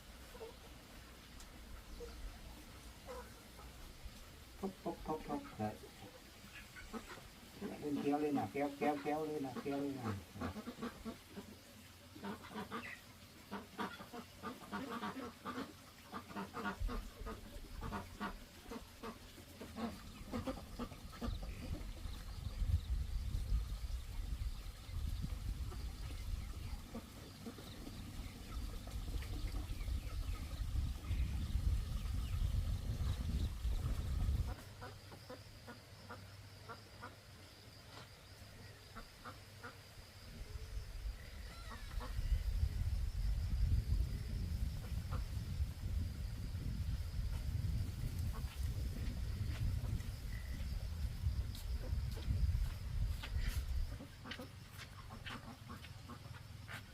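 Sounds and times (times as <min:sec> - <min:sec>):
ducks quacking: 0:04.6 - 0:11.6, 0:12.2 - 0:22.6, 0:33.0 - 0:37.2, 0:53.8 - 0:56.5
poultry calling: 0:04.6 - 0:11.6, 0:12.2 - 0:22.2, 0:41.2 - 0:42.4.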